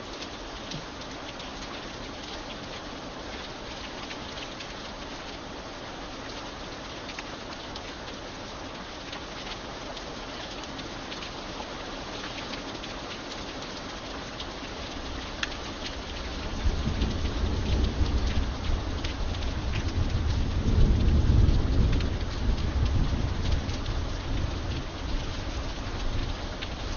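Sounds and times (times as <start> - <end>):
raindrops ticking: 0.0 - 26.9
steady rain: 0.0 - 26.9
thunder rumble: 16.4 - 26.4.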